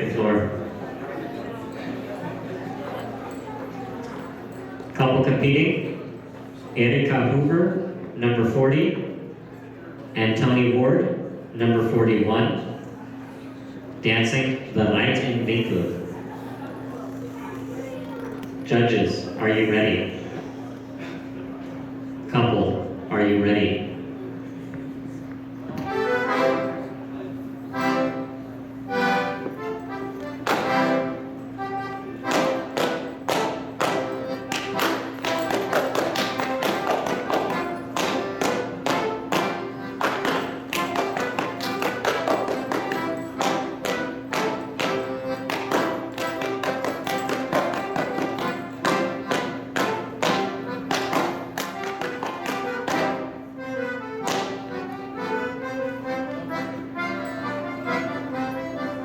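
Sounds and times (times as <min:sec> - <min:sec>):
accordion folk dance tune: 0:00.0 - 0:09.3, 0:11.1 - 0:22.9, 0:24.4 - 0:59.0
hand slaps claps and stomps: 0:54.2 - 0:54.5.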